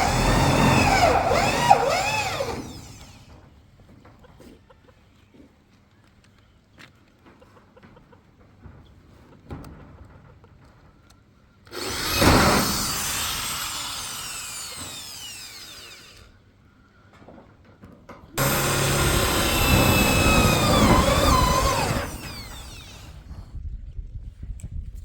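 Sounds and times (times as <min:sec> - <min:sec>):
power tool running: 0:00.0 - 0:03.3, 0:11.8 - 0:16.3, 0:18.4 - 0:23.5.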